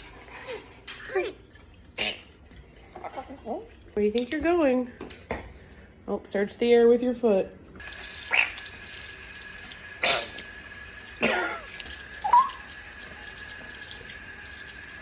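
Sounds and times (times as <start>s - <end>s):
parrot calling: 8.3s - 8.6s, 12.2s - 12.7s.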